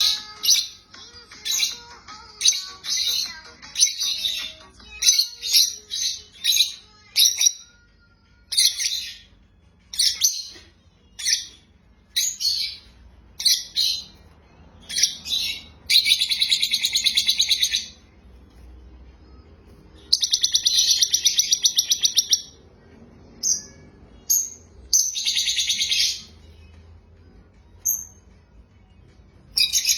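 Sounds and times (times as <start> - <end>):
small bird chirping: 19.9 - 22.6.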